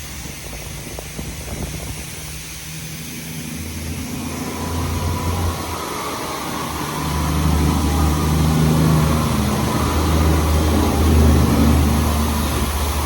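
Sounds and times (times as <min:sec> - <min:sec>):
car wash rumble: 0:00.0 - 0:13.0
water spray hiss: 0:00.0 - 0:13.0.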